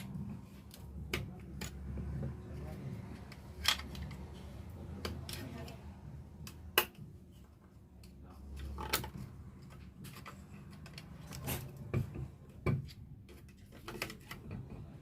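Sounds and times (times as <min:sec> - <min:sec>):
metallic tool clicks and knocks: 0:00.7 - 0:02.3.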